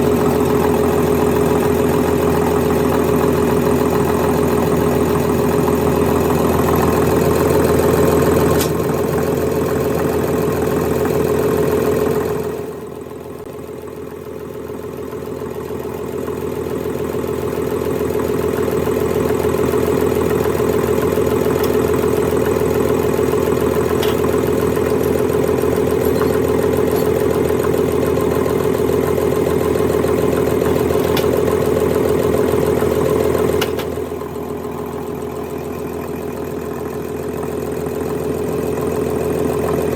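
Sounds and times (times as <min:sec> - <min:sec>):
machinery humming: 0:21.7 - 0:28.4, 0:33.4 - 0:37.3.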